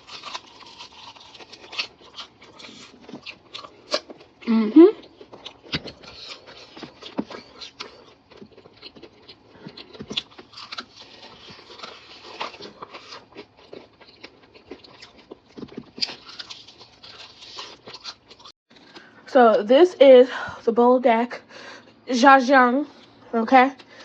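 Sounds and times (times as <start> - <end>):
chewing crispy fried chicken: 0.0 - 19.2.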